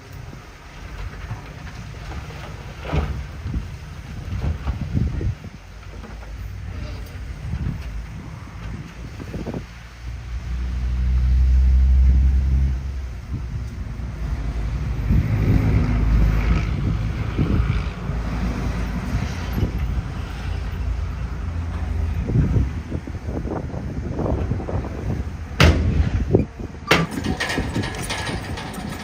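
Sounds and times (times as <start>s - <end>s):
heavy machinery diesel engine: 0.0s - 29.0s
knocks and clanks: 25.6s - 29.0s.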